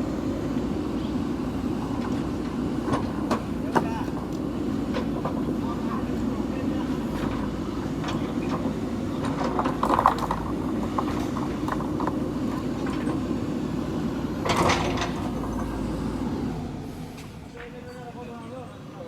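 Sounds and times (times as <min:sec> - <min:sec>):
diesel engine running: 0:00.0 - 0:17.8
knocks and clatters: 0:08.0 - 0:13.2.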